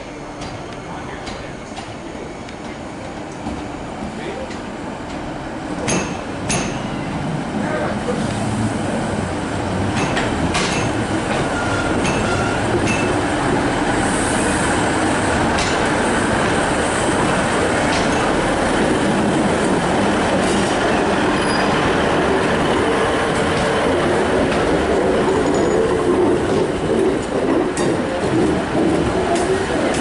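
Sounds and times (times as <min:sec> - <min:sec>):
train rumbling: 0:00.0 - 0:30.0
train clanks: 0:00.3 - 0:30.0
wheel squeals: 0:21.3 - 0:21.8.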